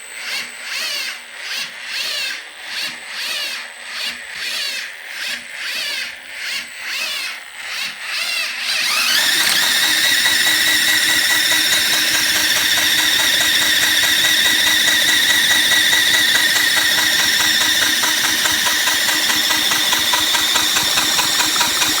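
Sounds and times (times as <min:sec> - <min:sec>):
power drill whining: 0:07.8 - 0:22.0.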